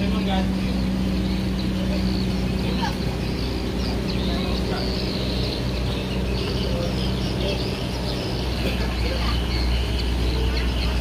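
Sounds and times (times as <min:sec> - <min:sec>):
speedboat engine droning: 0:00.0 - 0:11.0
high bird-like chirps: 0:00.5 - 0:11.0.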